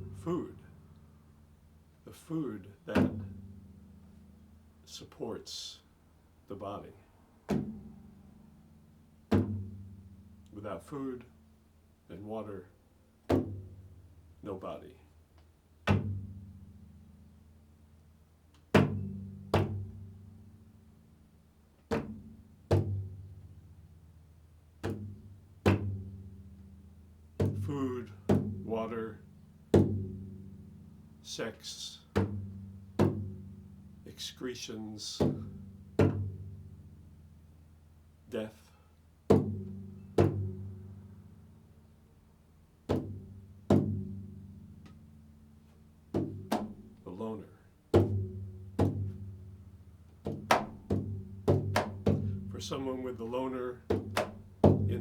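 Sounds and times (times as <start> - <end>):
low-pitched drum strokes: 46.1 - 55.0.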